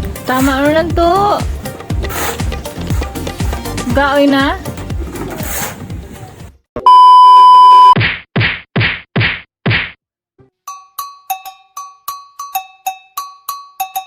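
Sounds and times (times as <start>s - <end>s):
loud bleep tone: 6.8s - 8.0s
whack impacts: 8.0s - 10.0s.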